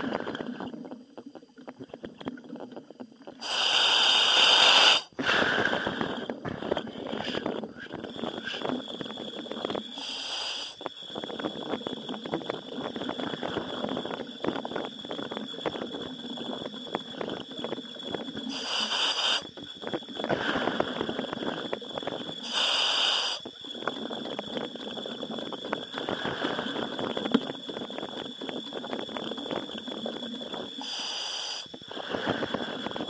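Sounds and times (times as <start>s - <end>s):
crackling and bubbling: 0.0s - 33.0s
hissing breaths through helmet: 3.4s - 6.4s, 9.9s - 10.8s, 18.5s - 19.5s, 20.3s - 21.4s, 22.4s - 23.4s, 30.8s - 33.0s.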